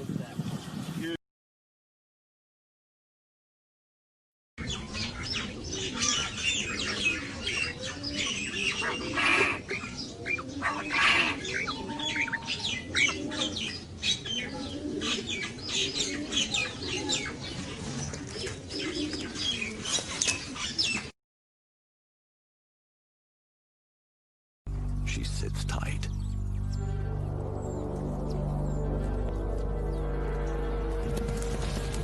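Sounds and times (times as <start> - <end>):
low cooing bird calls: 4.6 - 21.1.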